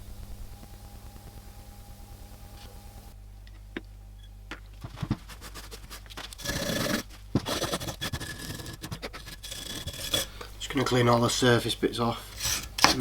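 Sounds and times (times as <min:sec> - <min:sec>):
scraping rust off wrench: 0:04.9 - 0:11.4, 0:12.2 - 0:13.0.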